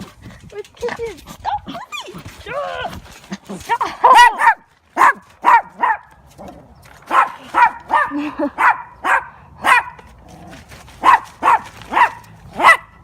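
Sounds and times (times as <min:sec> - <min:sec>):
dog barking: 0:04.0 - 0:06.1, 0:07.1 - 0:10.0, 0:11.0 - 0:13.0.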